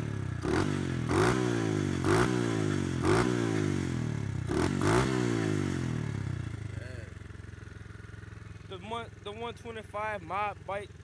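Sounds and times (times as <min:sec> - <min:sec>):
pit bike engine revving: 0:00.0 - 0:07.2.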